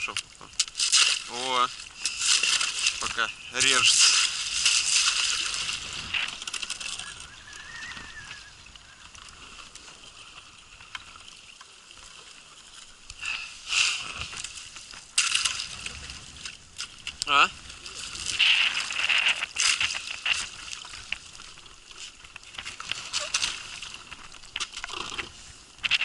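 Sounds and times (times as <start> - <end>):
ice crunching and scraping: 0.0 - 8.2, 17.8 - 21.2, 22.0 - 26.0.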